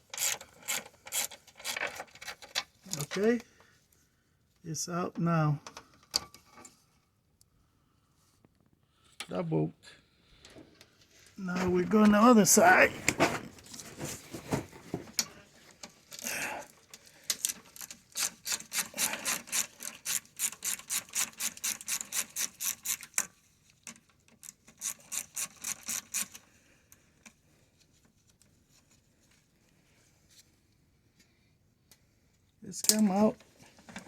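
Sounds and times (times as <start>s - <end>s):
socket ratchet strokes: 0.0s - 1.9s, 17.3s - 23.4s, 24.4s - 26.4s.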